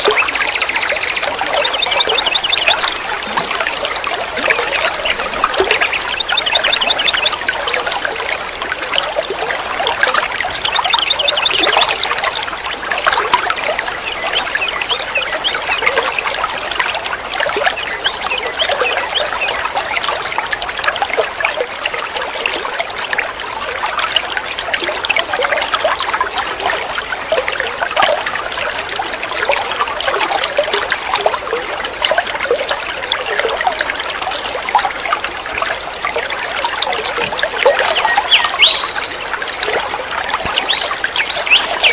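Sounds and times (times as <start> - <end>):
songbird chirping: 0.0 - 7.8, 37.5 - 41.9.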